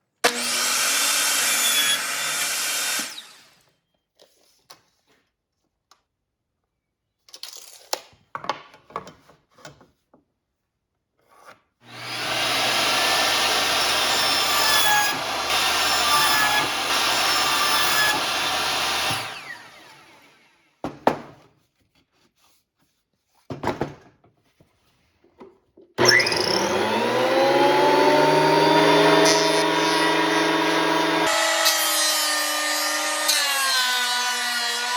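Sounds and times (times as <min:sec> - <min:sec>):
electric woodworking tool running: 0:00.2 - 0:03.5, 0:11.8 - 0:20.7, 0:26.0 - 0:34.9.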